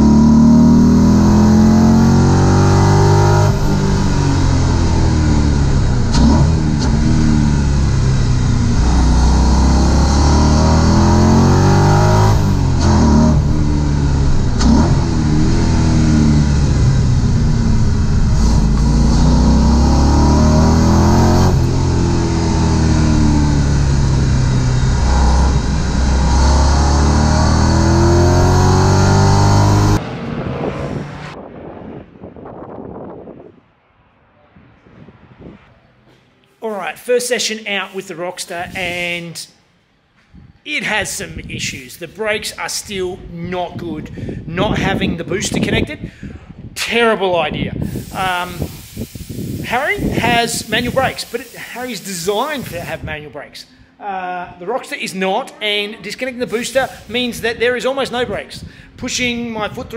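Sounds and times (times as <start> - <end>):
car engine accelerating and shifting: 0.0 - 32.4.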